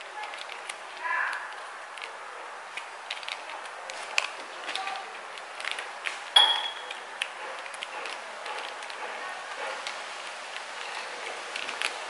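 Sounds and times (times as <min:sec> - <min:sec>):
sharp ringing clink: 0:06.4 - 0:06.9.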